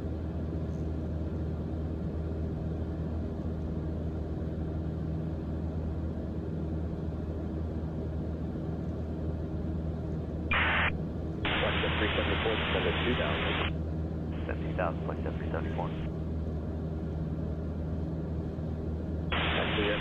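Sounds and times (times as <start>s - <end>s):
aircraft engine and propeller drone: 0.0s - 20.0s.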